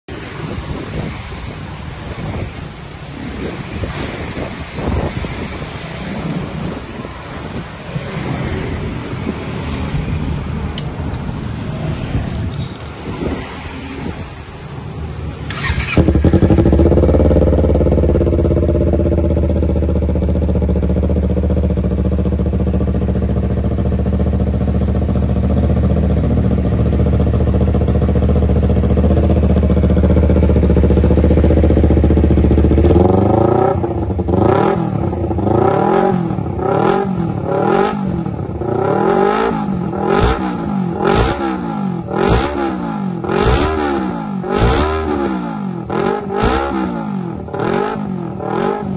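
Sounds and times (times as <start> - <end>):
motorcycle engine starting and revving: 15.1 - 48.9.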